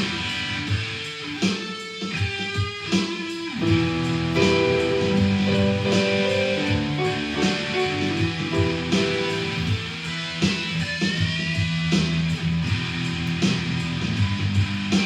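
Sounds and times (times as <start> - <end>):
acoustic guitar strummed: 3.6 - 9.9.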